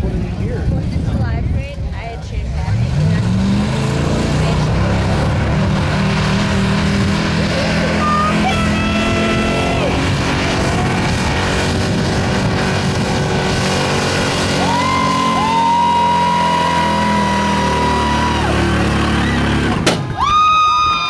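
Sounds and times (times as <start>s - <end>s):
truck engine at full throttle: 0.0s - 20.5s
sharp bang: 19.8s - 20.2s.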